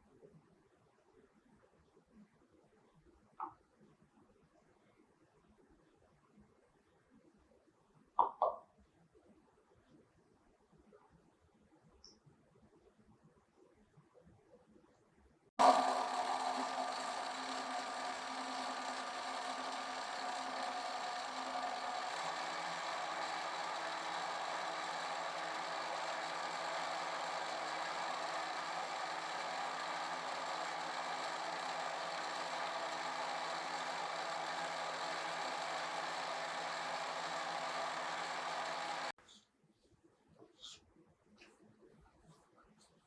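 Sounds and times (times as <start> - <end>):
electric mixer motor whine: 15.6 - 39.1.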